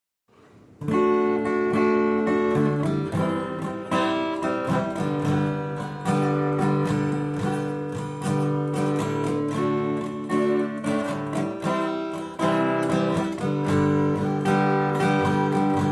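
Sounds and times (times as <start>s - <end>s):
acoustic guitar strumming chords: 0.8s - 15.9s.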